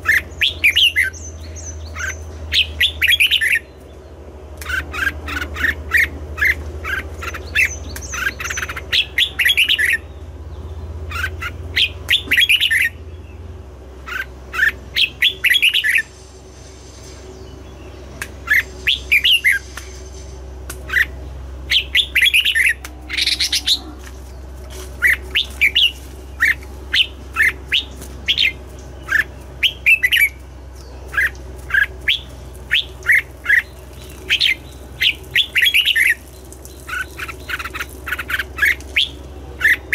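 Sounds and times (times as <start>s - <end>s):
bulbul singing: 0.0s - 16.4s, 17.0s - 39.9s
steady low hum: 0.0s - 39.9s.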